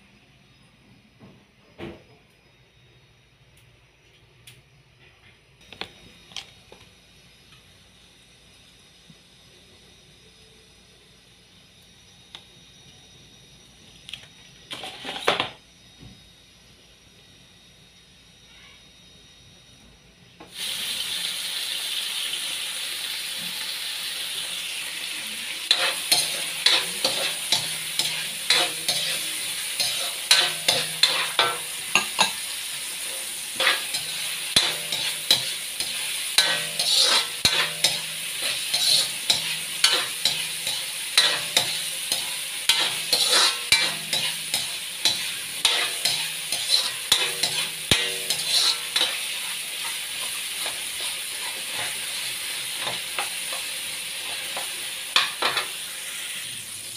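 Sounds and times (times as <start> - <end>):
metal spatula scraping a wok: 14.7 - 15.4, 25.7 - 55.8
onion sizzling in hot oil: 20.4 - 56.9.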